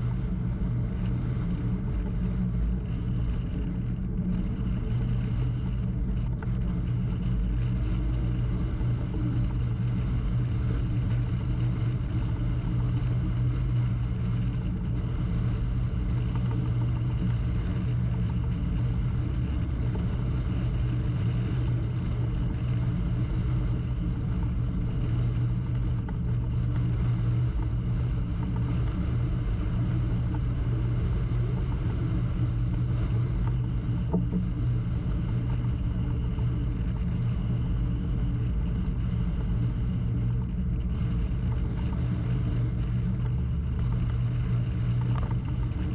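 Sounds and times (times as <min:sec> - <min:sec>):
boat engine droning: 0:00.0 - 0:45.9.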